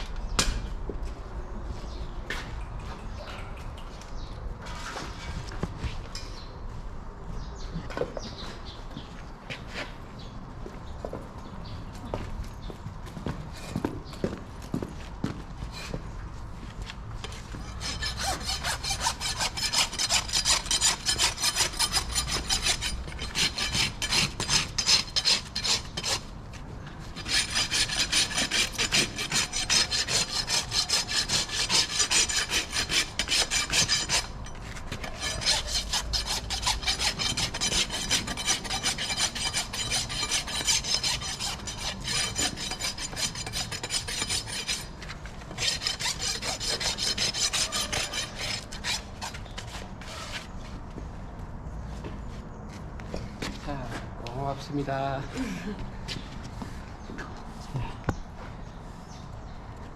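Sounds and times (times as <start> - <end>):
rasp filing a hoof: 17.5 - 50.6.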